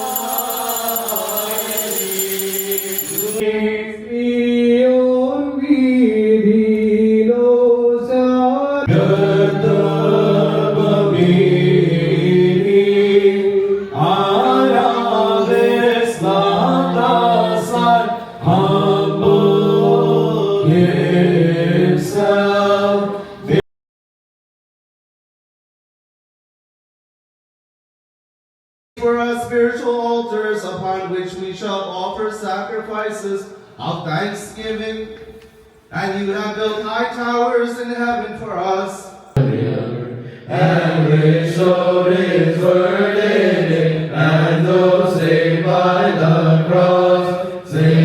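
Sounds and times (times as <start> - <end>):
group of voices chanting: 39.4 - 48.0.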